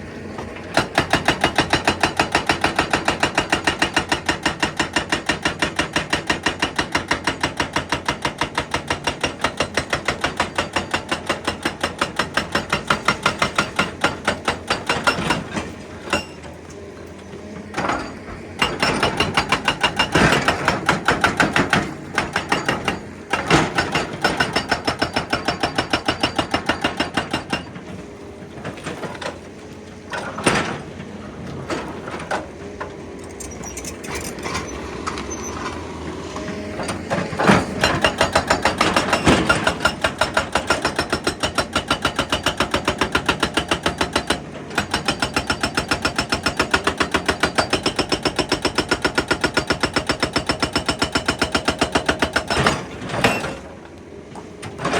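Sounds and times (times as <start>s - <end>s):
hydraulic breaker hammering rock: 0.7s - 16.5s, 17.7s - 29.4s, 36.5s - 53.7s.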